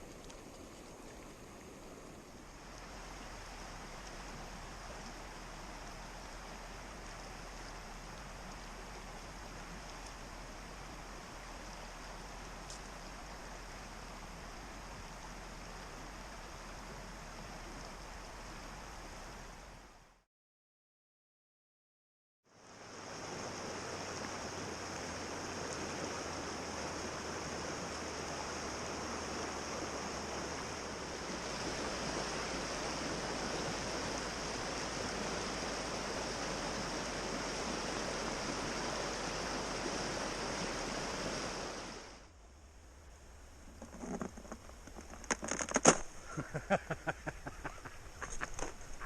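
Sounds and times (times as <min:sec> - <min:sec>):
flowing river water: 0:00.0 - 0:20.2, 0:22.5 - 0:49.0
sharp clicks and knocks: 0:43.7 - 0:46.1.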